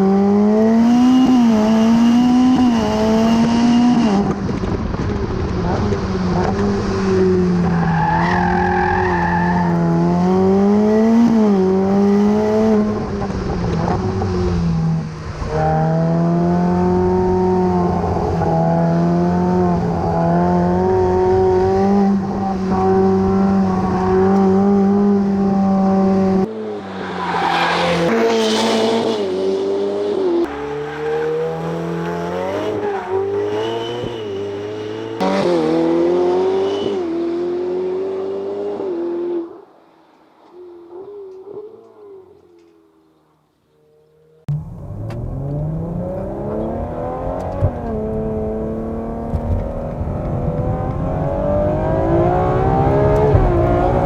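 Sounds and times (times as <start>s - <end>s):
supercar engine revving: 15.6s - 39.3s
brief rush of noise: 26.5s - 29.5s.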